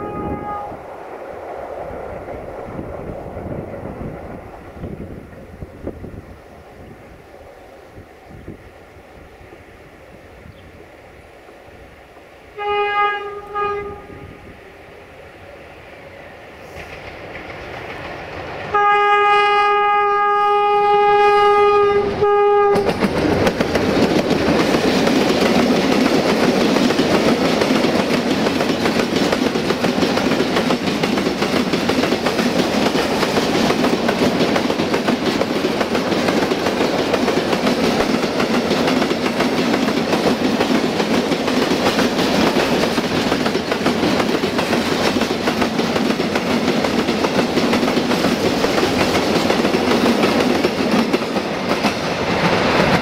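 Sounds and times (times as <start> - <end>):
diesel locomotive horn blast: 0.0 - 0.8, 12.5 - 14.5, 18.7 - 23.0
train wheels on rails: 0.0 - 53.0.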